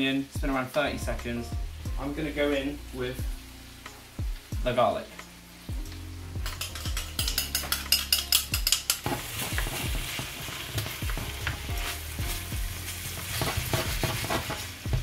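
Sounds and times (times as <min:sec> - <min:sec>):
meat and peppers sizzling in pan: 0:00.0 - 0:15.0
tongs knocking against pan: 0:06.5 - 0:09.1.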